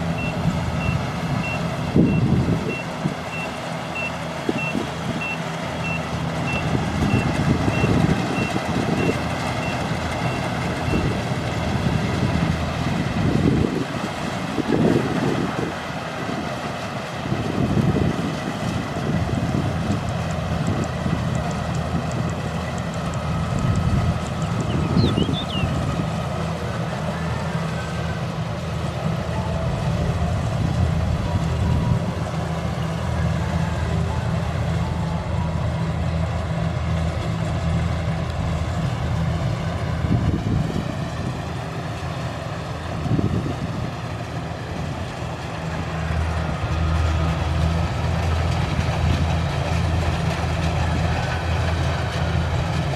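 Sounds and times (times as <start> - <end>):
diesel engine running under load: 0.0 - 52.9
wind buffeting microphone: 0.5 - 3.3, 6.6 - 26.6, 38.2 - 52.9.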